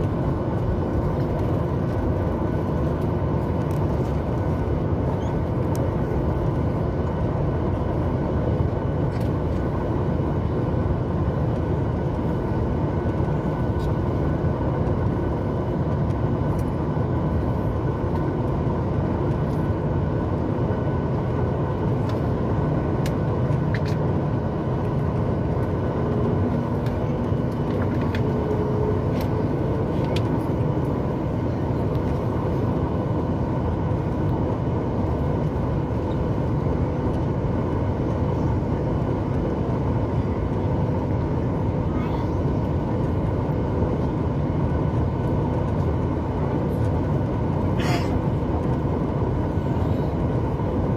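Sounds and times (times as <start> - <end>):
airplane cabin engine rush: 0.0 - 50.9
faint whining tones: 24.8 - 45.4.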